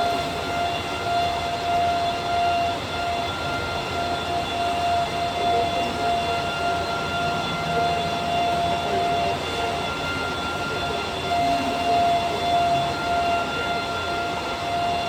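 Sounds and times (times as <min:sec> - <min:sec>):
high spindle whine: 0:00.0 - 0:15.0.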